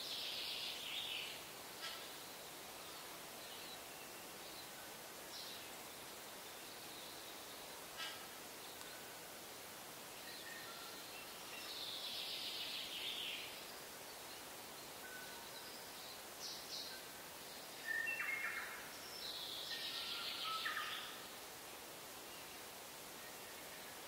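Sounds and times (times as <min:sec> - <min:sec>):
steady hiss: 0:00.0 - 0:24.0
birds singing: 0:10.2 - 0:21.3.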